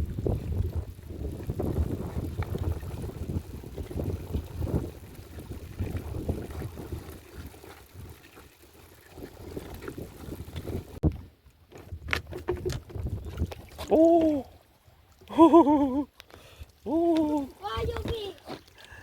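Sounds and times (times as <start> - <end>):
wind buffeting microphone: 0.0 - 8.3, 8.9 - 11.3, 11.9 - 14.4, 17.2 - 18.3
lapping water: 0.0 - 11.0, 13.0 - 19.0.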